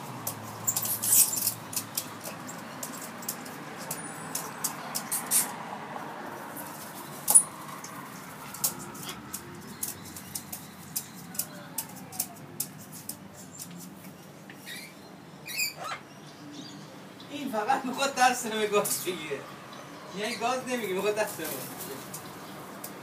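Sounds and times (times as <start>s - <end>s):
parrots clicking and tapping: 0.2s - 5.5s, 6.6s - 14.6s
parrot high squeak: 14.6s - 16.0s.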